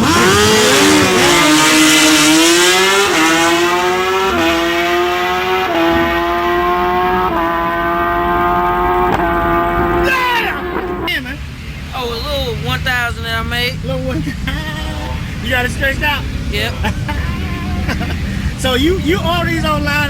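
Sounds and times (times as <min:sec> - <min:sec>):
motorcycle accelerating through gears: 0:00.0 - 0:11.2.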